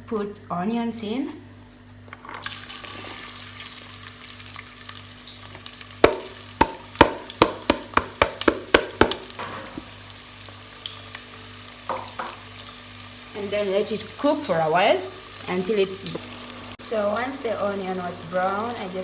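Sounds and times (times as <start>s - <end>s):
onions sizzling in oil: 2.4s - 19.0s
spoon knocking against pot: 6.0s - 9.5s.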